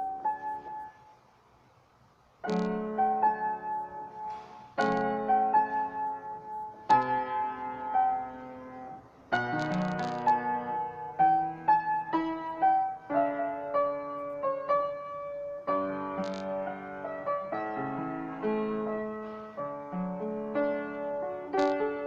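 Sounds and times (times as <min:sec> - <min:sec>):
piano notes: 0:00.0 - 0:01.2, 0:02.4 - 0:22.0.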